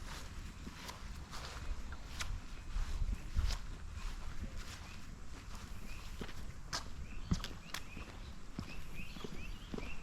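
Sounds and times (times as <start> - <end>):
footsteps on a path: 0.0 - 10.0.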